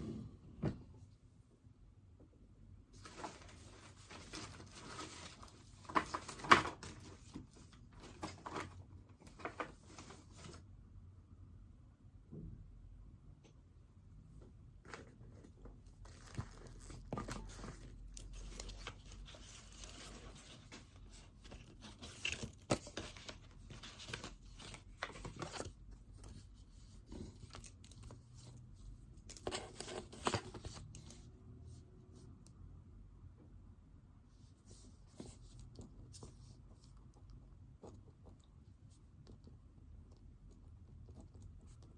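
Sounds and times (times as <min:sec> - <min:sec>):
paper rustling and crinkling: 0:02.9 - 0:10.6, 0:14.8 - 0:31.3.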